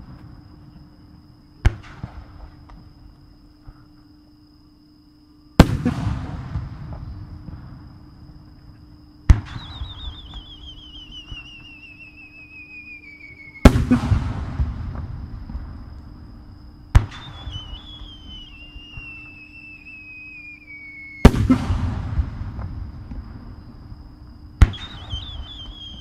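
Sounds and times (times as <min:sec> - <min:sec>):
firework mortar crack: 0:05.6 - 0:07.6, 0:13.6 - 0:15.8, 0:21.2 - 0:23.4
warbling firework whistle: 0:09.4 - 0:15.0, 0:17.0 - 0:22.8, 0:24.6 - 0:26.0
firework burst boom: 0:13.6 - 0:15.9, 0:21.2 - 0:23.6.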